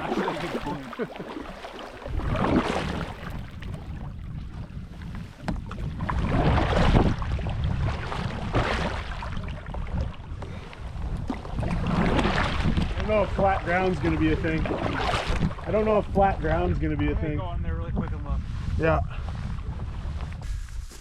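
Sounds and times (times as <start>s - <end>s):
paddle splashing in water: 0.0s - 15.9s
wind buffeting microphone: 0.0s - 21.0s.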